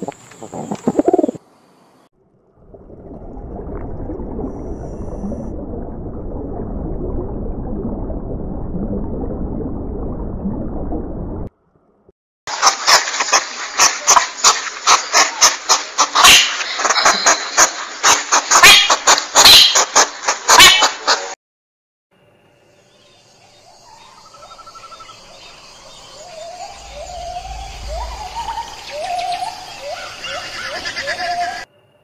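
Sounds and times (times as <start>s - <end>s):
wood pigeon cooing: 0.0s - 1.4s
underwater rumble of moving water: 2.2s - 11.5s, 26.2s - 29.8s.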